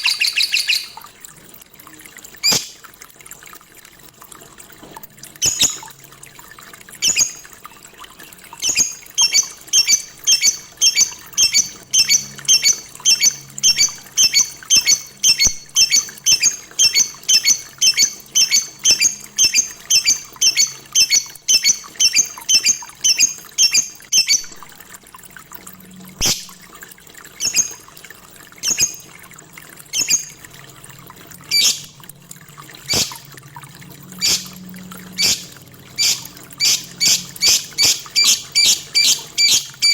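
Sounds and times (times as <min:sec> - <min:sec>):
lovebird chirping: 0:00.0 - 0:01.0, 0:05.4 - 0:05.9, 0:07.0 - 0:07.4, 0:08.6 - 0:24.5, 0:31.5 - 0:31.9, 0:32.9 - 0:33.2, 0:35.2 - 0:39.9.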